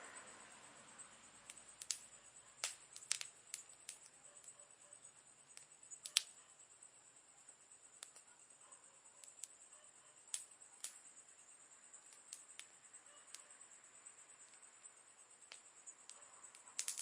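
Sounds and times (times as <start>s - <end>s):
faint hiss: 0.0s - 17.0s
campfire crackling and popping: 1.4s - 4.6s, 5.4s - 6.4s, 7.8s - 8.4s, 9.2s - 9.6s, 10.2s - 11.1s, 12.0s - 13.4s, 14.4s - 17.0s.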